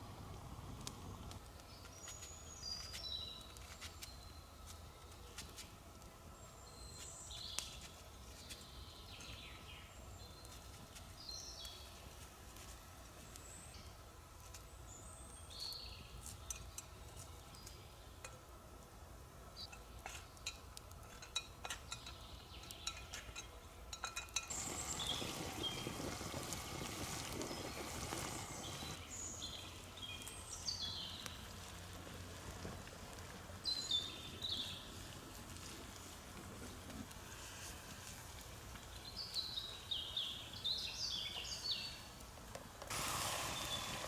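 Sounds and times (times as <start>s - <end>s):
birds chirping: 24.5s - 31.5s, 33.6s - 35.0s, 43.0s - 44.0s.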